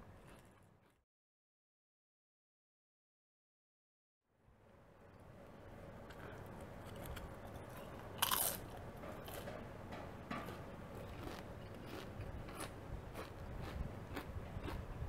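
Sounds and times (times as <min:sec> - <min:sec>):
chip crunching while chewed: 0:00.1 - 0:01.0, 0:06.6 - 0:09.5, 0:10.4 - 0:15.0.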